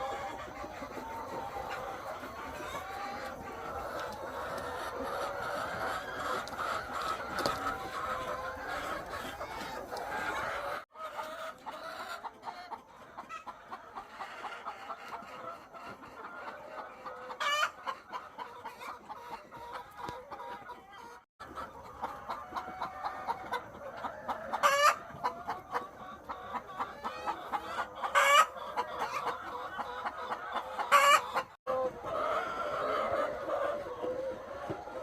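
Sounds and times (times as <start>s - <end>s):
hens clucking: 0.0s - 35.0s.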